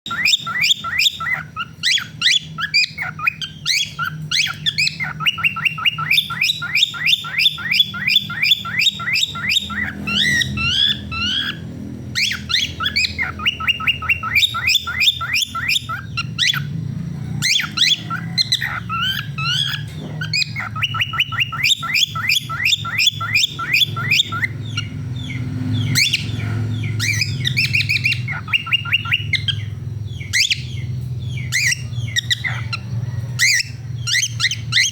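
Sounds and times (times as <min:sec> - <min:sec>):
cockatiel chirping and warbling: 0:00.1 - 0:34.9
steady low hum: 0:00.1 - 0:34.9.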